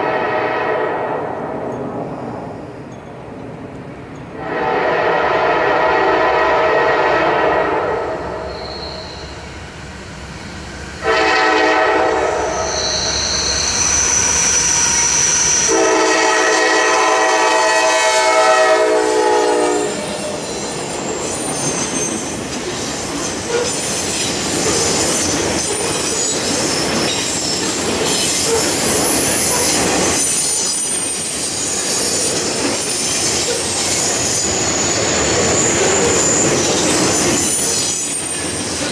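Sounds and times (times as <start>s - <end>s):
high squealing train wheels: 0.0s - 0.6s, 1.2s - 38.9s
locomotive horn blasts: 0.0s - 1.1s, 4.4s - 9.3s, 11.0s - 12.9s, 15.6s - 20.1s
train wheel clatter: 20.0s - 38.9s.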